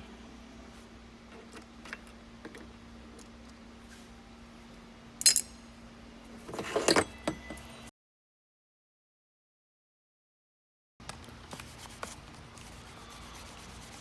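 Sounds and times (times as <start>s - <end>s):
faint steady hum: 0.0s - 7.9s, 11.1s - 14.0s.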